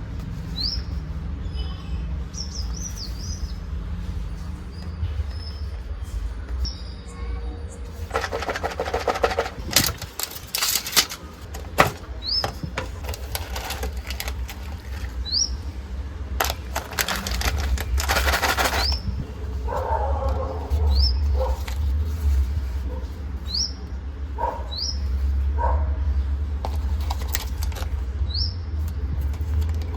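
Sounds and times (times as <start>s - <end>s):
rapid crackling and clicking: 7.9s - 15.6s, 16.4s - 22.4s.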